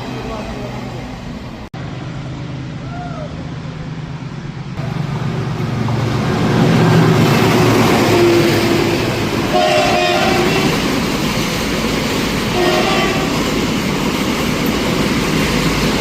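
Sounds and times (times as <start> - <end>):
train rumbling on rails: 0.0 - 16.0
train horn: 8.0 - 10.9, 12.5 - 13.5.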